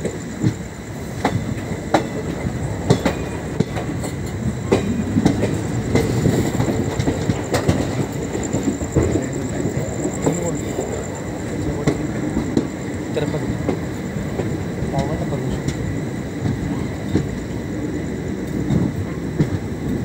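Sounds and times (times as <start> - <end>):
train wheels rumbling on track: 0.0 - 20.0
wheels clacking over rail joints: 0.0 - 20.0.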